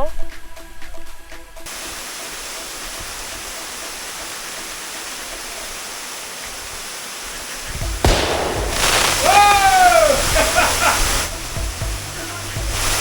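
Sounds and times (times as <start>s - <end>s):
waterfall rushing: 1.7s - 13.0s.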